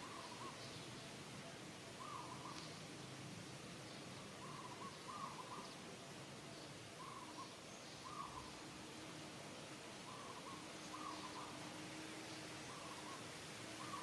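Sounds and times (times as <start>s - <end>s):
bird hooting call: 0.0s - 0.6s, 2.0s - 2.6s, 4.4s - 5.7s, 7.0s - 8.6s, 10.1s - 11.8s, 12.6s - 14.0s
faint outdoor background hiss: 0.0s - 14.0s.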